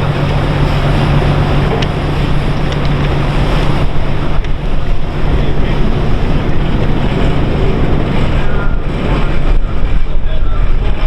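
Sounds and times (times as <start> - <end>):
steady low hum: 0.0 - 11.0
wind buffeting microphone: 0.0 - 11.0.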